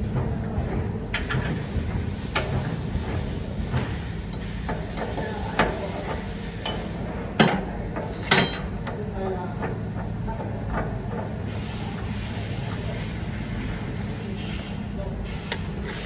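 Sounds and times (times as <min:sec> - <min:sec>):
clicks and knocks of tools: 0:03.8 - 0:09.0, 0:15.4 - 0:16.0.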